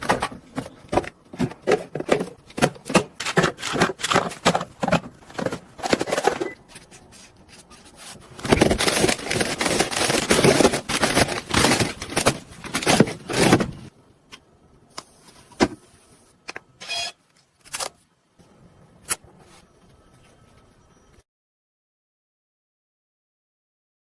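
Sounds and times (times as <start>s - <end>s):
food packs rustling and clattering: 0.0s - 13.9s.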